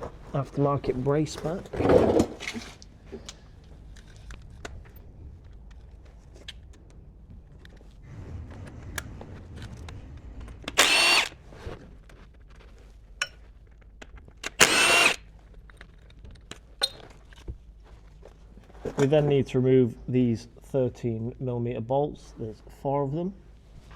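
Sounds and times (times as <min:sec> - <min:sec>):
cordless power tool whine: 0:10.5 - 0:11.5, 0:14.4 - 0:15.3.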